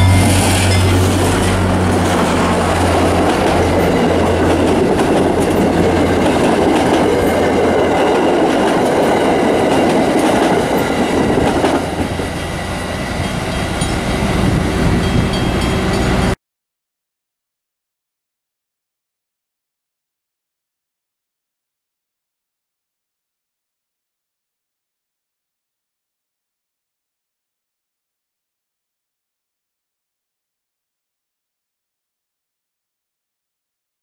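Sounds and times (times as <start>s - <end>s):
wheel-on-rail rumble and clatter: 0.0s - 12.5s
locomotive engine drone: 0.0s - 16.4s.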